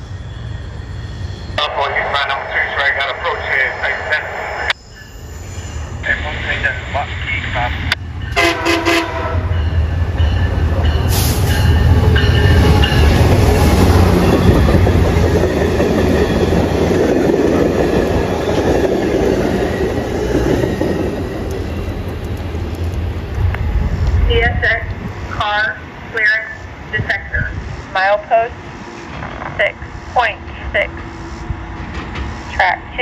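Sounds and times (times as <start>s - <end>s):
diesel locomotive engine rumble: 0.0s - 4.8s, 5.5s - 33.0s
train wheels clattering on rails: 31.8s - 32.8s.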